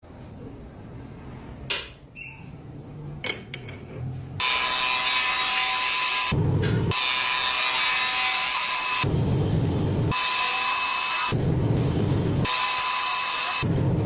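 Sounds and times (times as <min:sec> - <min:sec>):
lathe machining noise: 0:04.4 - 0:13.7.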